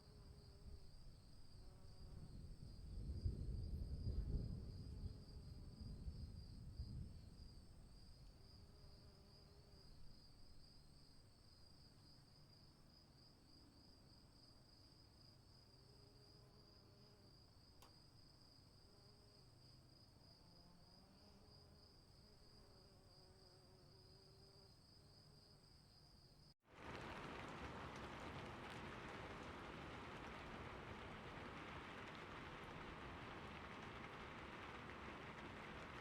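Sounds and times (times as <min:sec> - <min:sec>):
faint low rumble: 0:26.8 - 0:36.0.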